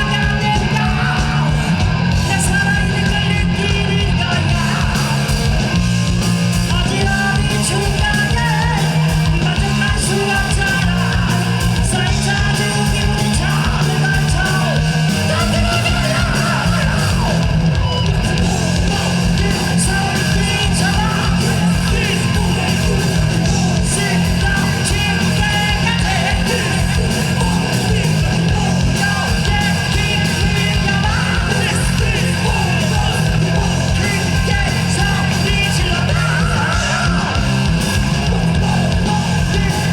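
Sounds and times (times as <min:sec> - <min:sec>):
distorted electric guitars: 0:00.0 - 0:39.9
driving bass line: 0:00.0 - 0:39.9
fast dense drumming: 0:00.0 - 0:39.9
yelled vocals: 0:00.0 - 0:39.9.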